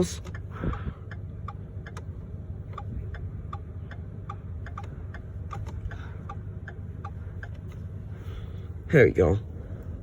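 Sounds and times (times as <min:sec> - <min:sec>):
turn signal clicking: 0:00.0 - 0:07.9
engine idling hum: 0:00.0 - 0:10.0.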